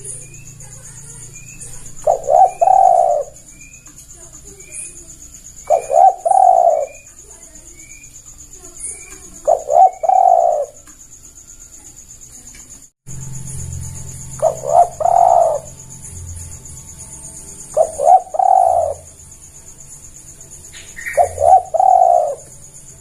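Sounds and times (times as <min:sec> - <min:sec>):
dove cooing: 0:00.0 - 0:07.6, 0:09.0 - 0:10.8, 0:14.3 - 0:15.9, 0:17.6 - 0:19.3, 0:20.7 - 0:23.0
faint high chirps: 0:00.0 - 0:23.0.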